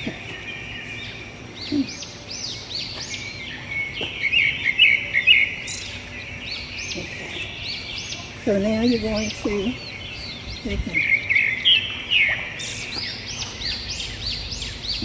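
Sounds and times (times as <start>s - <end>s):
birds singing and chirping: 0.0s - 15.0s.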